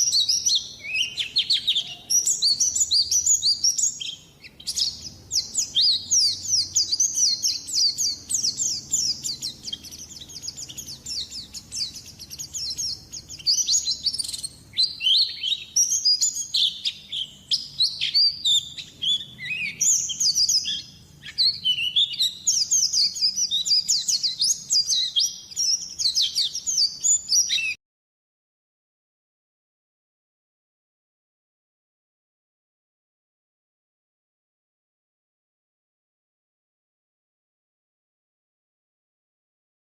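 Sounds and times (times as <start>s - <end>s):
bird singing rapid high notes: 0.0s - 27.8s.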